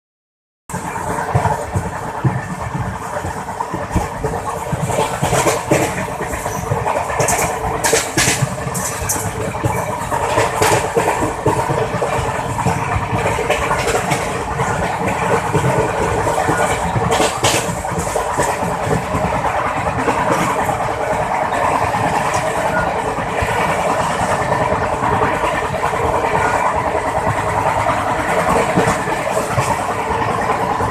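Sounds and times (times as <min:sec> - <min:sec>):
road travel noise: 0:00.7 - 0:30.9
sharp clicks and knocks: 0:04.8 - 0:11.9.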